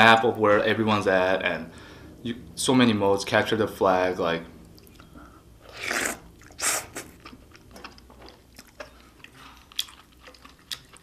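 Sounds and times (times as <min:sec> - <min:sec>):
loud mouth sounds: 0:05.6 - 0:07.3
soft chewing with clicks: 0:06.4 - 0:11.0.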